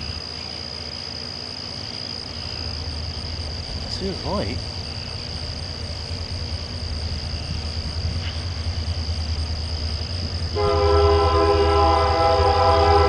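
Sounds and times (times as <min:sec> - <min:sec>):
locomotive rumbling: 0:00.0 - 0:13.0
night insects droning: 0:00.0 - 0:13.0
train air horn chord: 0:10.6 - 0:13.0.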